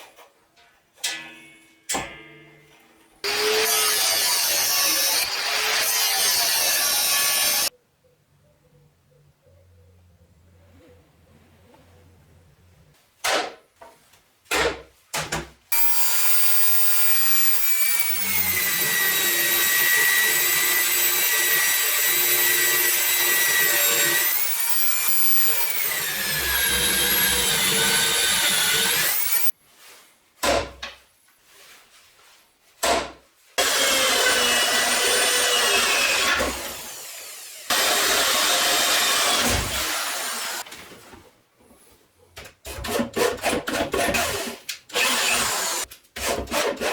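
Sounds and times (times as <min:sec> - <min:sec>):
angle grinder motor whine: 0:15.8 - 0:29.5.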